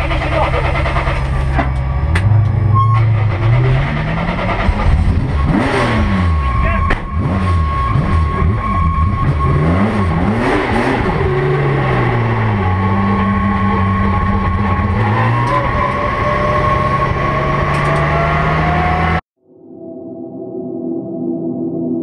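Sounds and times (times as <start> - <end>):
race car engine revving: 0.0 - 19.2.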